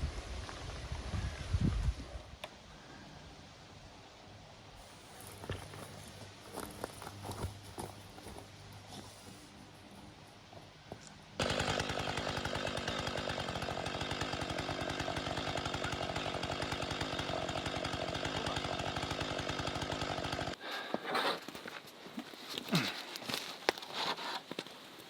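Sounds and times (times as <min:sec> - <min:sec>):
chainsaw running: 0:04.8 - 0:10.1, 0:11.4 - 0:20.6.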